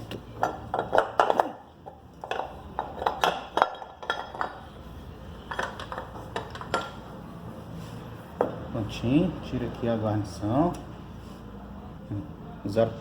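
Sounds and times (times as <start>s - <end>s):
metal parts clinking: 2.2s - 4.6s, 5.4s - 7.0s.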